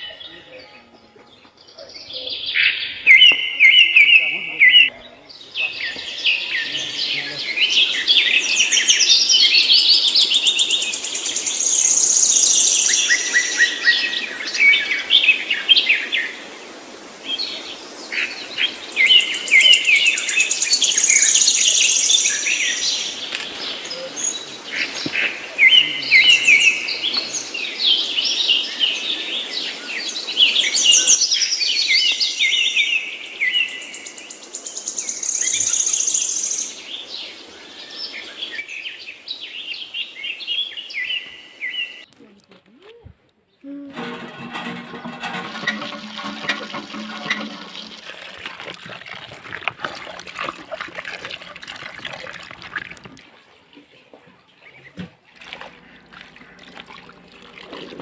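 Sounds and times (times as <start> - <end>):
songbirds chirping and singing: 0.0 - 16.3, 17.3 - 42.1.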